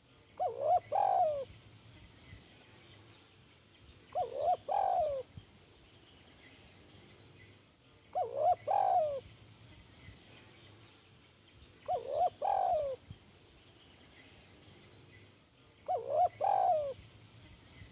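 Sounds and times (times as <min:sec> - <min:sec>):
dove cooing: 0:00.4 - 0:01.5, 0:04.1 - 0:05.3, 0:08.1 - 0:09.3, 0:11.8 - 0:13.1, 0:15.8 - 0:17.0.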